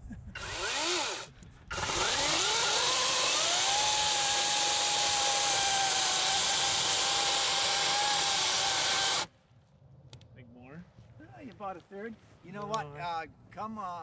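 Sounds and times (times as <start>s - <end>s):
battery chainsaw whine: 0.4s - 9.3s.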